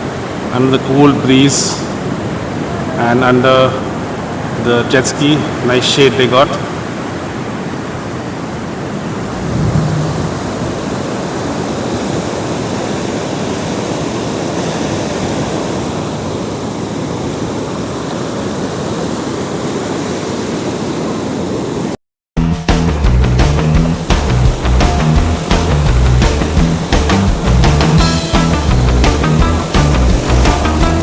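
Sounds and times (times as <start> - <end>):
sea surf rushing: 0.0 - 22.0, 22.9 - 31.0
wind on microphone: 9.0 - 13.3.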